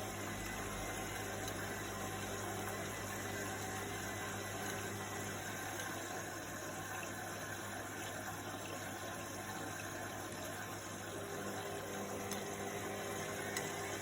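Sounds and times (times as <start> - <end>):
water swishing in washing machine: 0.0 - 14.0
low motor hum: 10.9 - 14.0.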